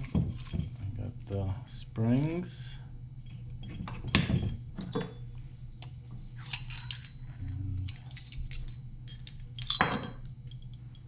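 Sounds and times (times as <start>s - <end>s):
low hum: 0.0s - 11.0s
small metal parts clinking: 6.4s - 7.2s, 7.8s - 11.0s.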